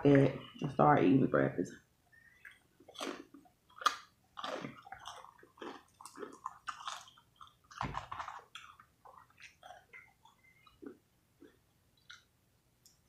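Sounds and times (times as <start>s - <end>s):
chewing crunches: 2.2s - 12.3s.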